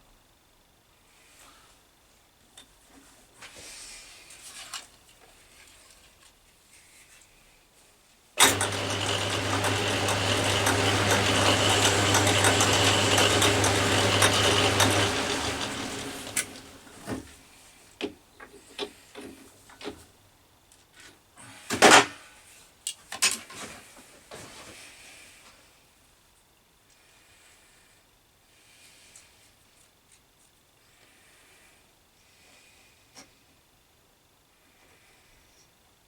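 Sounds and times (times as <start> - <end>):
electric motor humming: 8.4 - 17.1.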